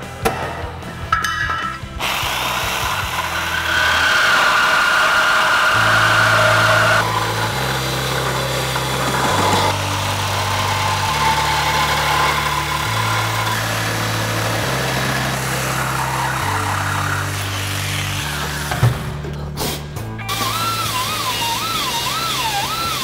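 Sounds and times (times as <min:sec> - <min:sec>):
background music with stepping bass: 0:00.0 - 0:04.6
power tool cutting metal: 0:01.9 - 0:19.2, 0:20.2 - 0:23.0.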